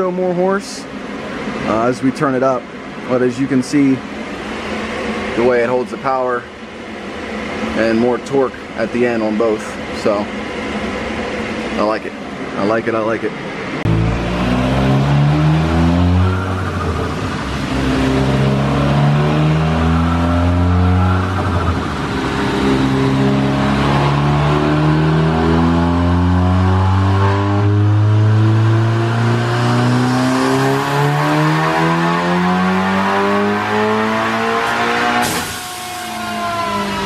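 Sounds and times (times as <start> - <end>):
turbocharged engine revving: 13.8 - 37.0.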